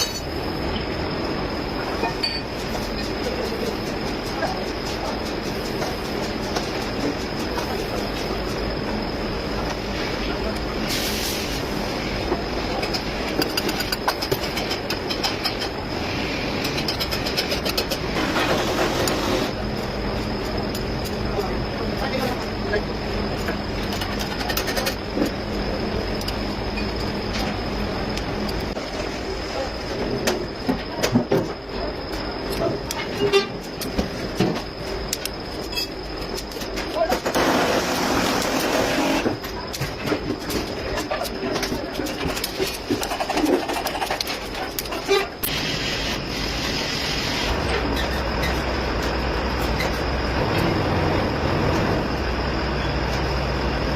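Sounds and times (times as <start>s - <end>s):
sharp clicking clatter: 16.5s - 19.2s, 23.5s - 25.4s, 39.4s - 45.6s
diesel engine drone: 45.4s - 53.9s.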